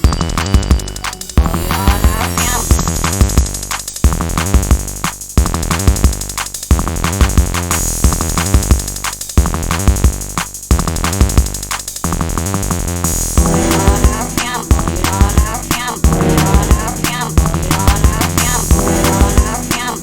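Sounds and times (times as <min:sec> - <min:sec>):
drum machine beat: 0:00.0 - 0:20.0
heavy bass: 0:00.0 - 0:20.0
chopped synthesizer stutters: 0:13.4 - 0:20.0.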